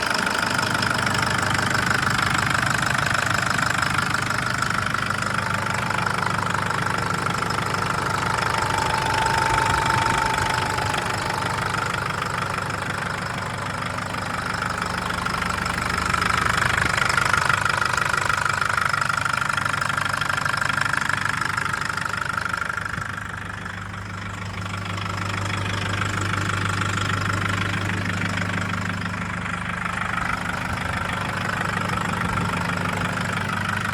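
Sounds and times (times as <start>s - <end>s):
diesel engine knocking: 0.0s - 33.9s.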